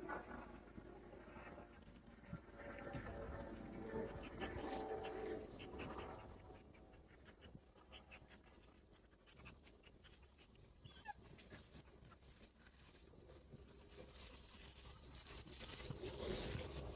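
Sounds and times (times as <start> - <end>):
dog panting: 3.4 - 12.5.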